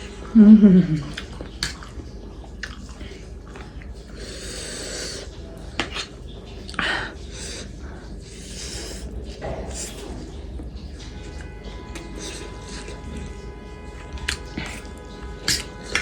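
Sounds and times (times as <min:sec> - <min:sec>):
person eating noodles: 0:12.0 - 0:13.4, 0:14.0 - 0:16.0.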